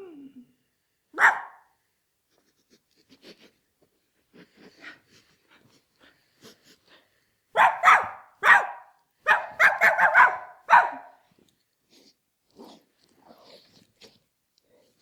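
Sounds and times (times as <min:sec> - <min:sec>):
dog barking: 0:01.2 - 0:01.7, 0:07.6 - 0:11.2.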